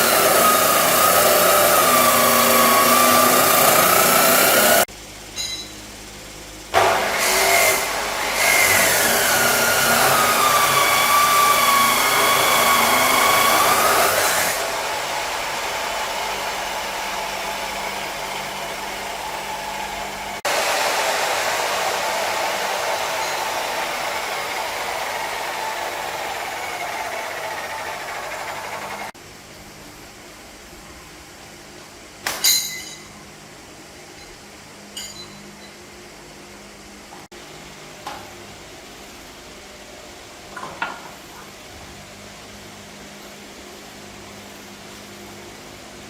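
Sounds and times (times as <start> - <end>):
motor whining: 0.0 - 4.9, 6.8 - 20.4, 21.8 - 29.2.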